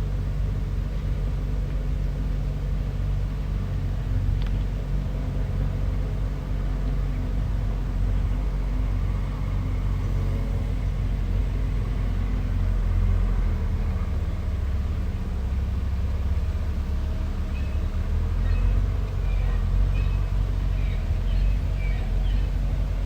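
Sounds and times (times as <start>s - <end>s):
bulldozer diesel engine running: 0.0s - 23.0s.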